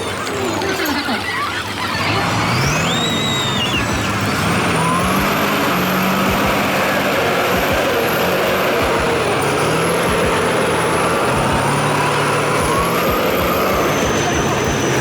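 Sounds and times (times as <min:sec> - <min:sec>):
heavy diesel engine running: 0:00.0 - 0:15.0
faint high whistle: 0:02.5 - 0:08.1.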